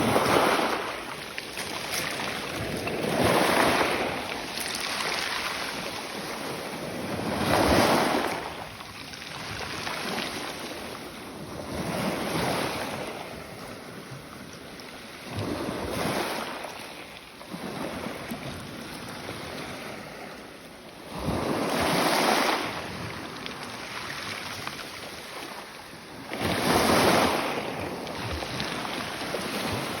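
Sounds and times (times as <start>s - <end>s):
ocean waves breaking: 0.0s - 14.0s, 21.0s - 30.0s.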